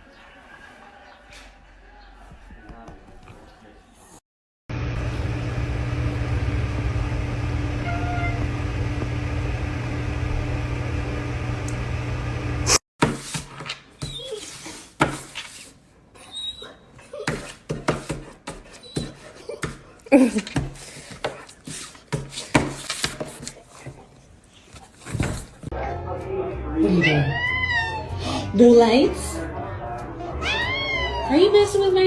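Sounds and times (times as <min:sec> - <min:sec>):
low mechanical hum: 0:04.7 - 0:12.7.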